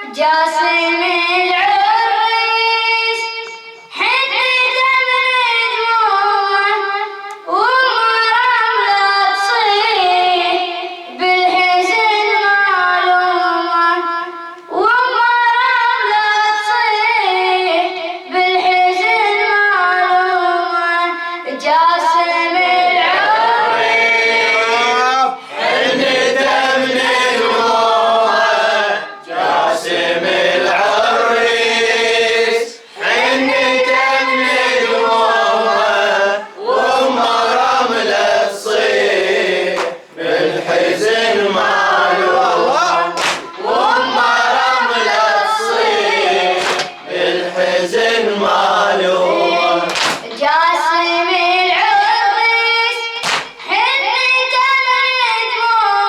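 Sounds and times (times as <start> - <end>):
young person reciting: 0.0 - 56.0
group singing in unison: 21.4 - 54.6.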